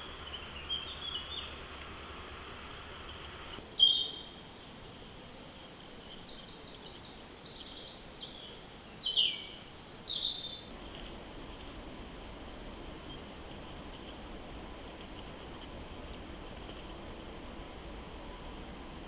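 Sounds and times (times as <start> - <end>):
faint hiss: 0.0 - 19.0
small animal squeaking: 3.8 - 4.4.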